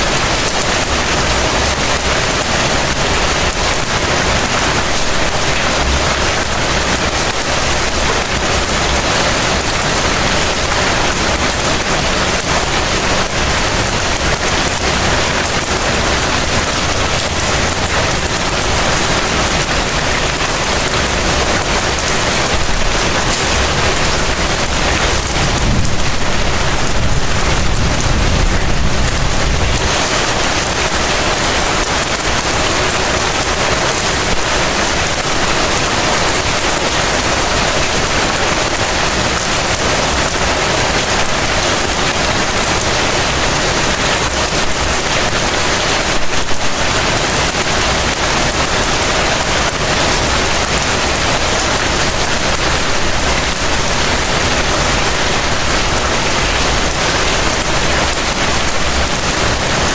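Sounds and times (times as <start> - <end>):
heavy rain falling: 0.0 - 59.9
low rumble: 25.1 - 29.9.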